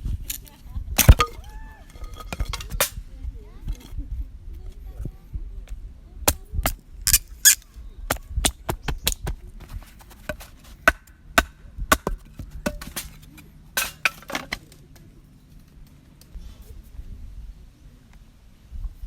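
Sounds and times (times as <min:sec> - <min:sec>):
hard objects knocking and clicking: 0:01.0 - 0:03.0.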